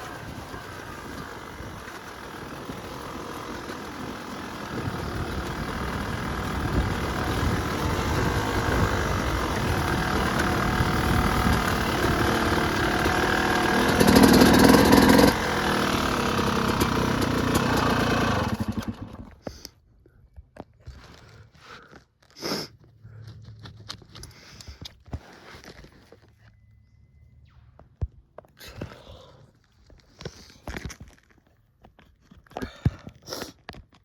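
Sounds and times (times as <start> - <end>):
dirt bike engine revving: 0.0 - 19.4.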